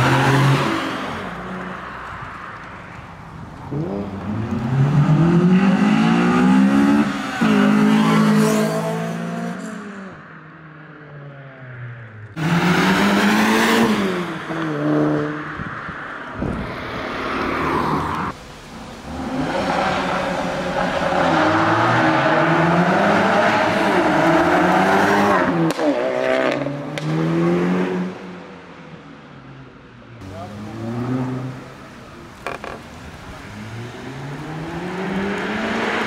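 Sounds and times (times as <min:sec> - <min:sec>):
cars accelerating hard: 0:00.0 - 0:02.0, 0:03.7 - 0:10.1, 0:12.4 - 0:28.4, 0:30.2 - 0:36.0.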